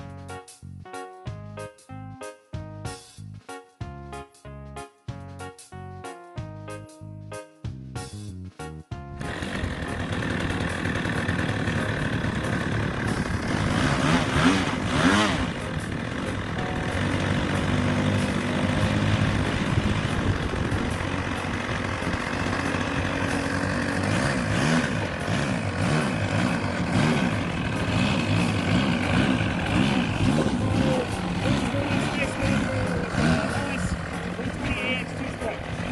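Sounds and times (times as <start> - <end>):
model airplane engine running: 9.2 - 35.9.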